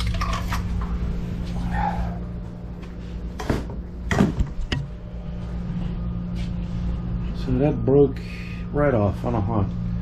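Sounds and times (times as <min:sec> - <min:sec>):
steady low hum: 0:00.0 - 0:10.0
sharp knocks and clicks: 0:03.4 - 0:04.9.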